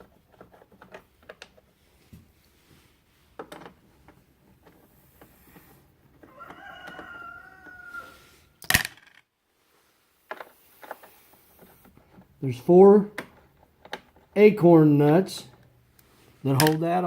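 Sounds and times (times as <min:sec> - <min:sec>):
rooster crowing: 0:06.2 - 0:08.5.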